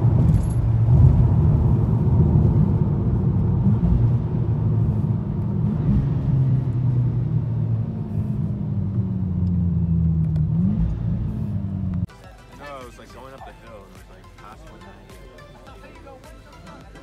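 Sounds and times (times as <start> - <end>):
car engine and exhaust droning: 0.0 - 12.1.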